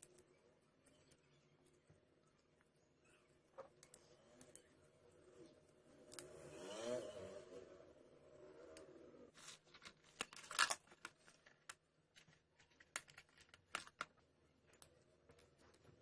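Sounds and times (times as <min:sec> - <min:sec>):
small parts clicking and scraping: 0:08.7 - 0:15.8.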